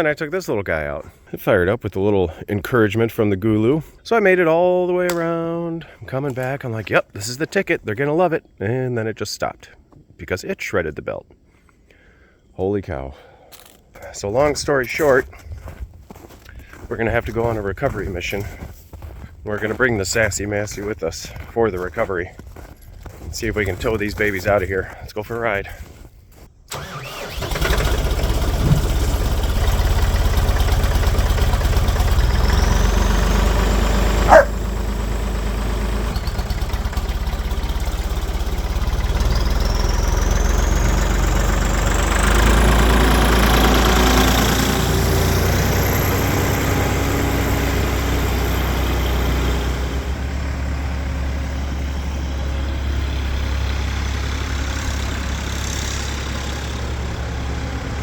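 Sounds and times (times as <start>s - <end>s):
diesel tractor engine running: 5.1s - 7.7s, 14.0s - 25.0s, 25.6s - 58.0s.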